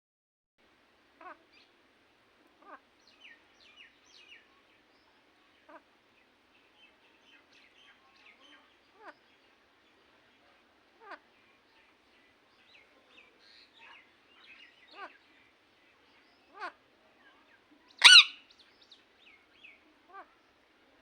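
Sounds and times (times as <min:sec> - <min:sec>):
parrot calls dropping in pitch: 0:18.0 - 0:18.4
parrot chirping: 0:18.0 - 0:18.4.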